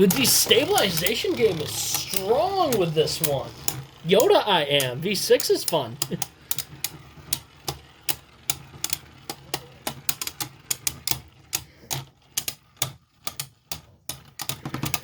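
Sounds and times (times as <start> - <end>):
spinning tops clacking together: 0.0 - 15.0.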